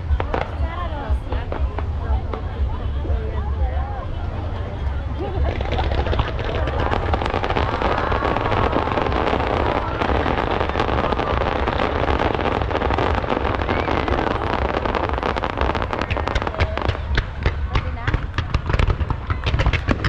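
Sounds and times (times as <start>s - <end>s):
low rumble: 0.0s - 20.0s
fireworks crackling and popping: 5.0s - 20.0s.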